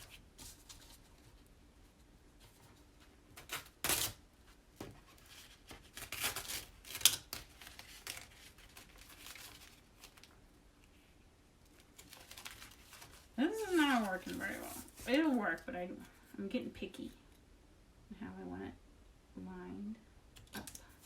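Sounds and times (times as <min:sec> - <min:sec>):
sticky sheet rustling: 0:02.4 - 0:10.4, 0:11.7 - 0:15.7.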